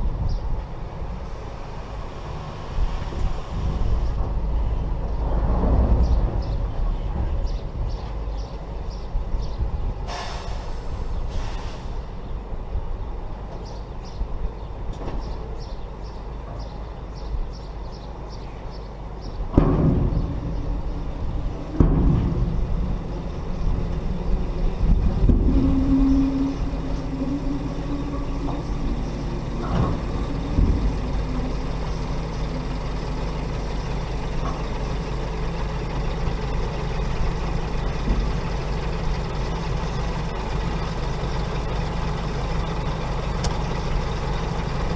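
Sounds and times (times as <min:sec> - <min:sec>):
heavy diesel engines running: 0:00.0 - 0:44.9
loud engine surges: 0:01.1 - 0:07.4, 0:19.5 - 0:44.9.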